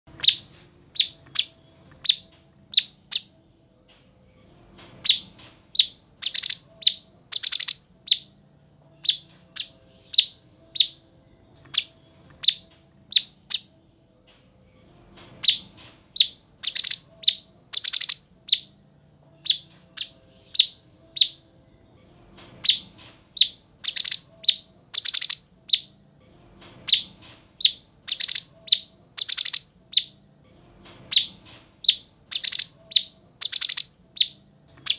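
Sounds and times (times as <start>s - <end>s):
songbird chirping and trilling: 0.1s - 3.6s, 4.2s - 14.0s, 14.6s - 30.2s, 31.0s - 34.9s.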